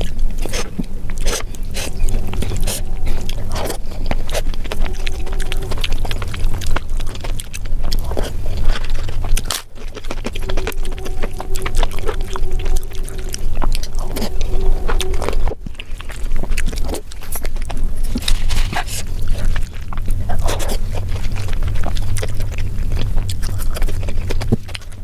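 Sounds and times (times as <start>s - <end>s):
faint steady tone: 0.0s - 16.9s
wet chewing mouth clicks: 0.0s - 25.0s.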